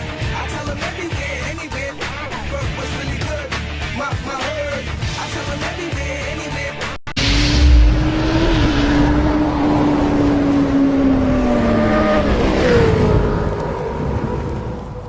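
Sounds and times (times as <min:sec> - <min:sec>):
motorcycle engine revving: 0:07.2 - 0:14.4.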